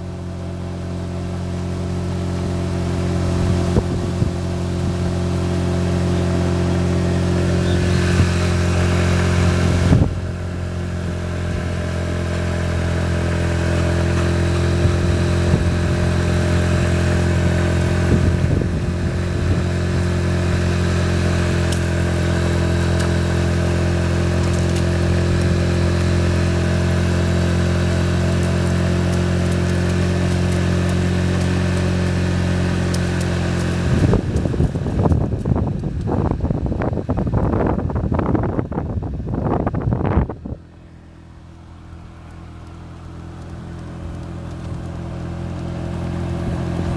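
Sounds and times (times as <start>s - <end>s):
machine humming: 6.0s - 35.6s.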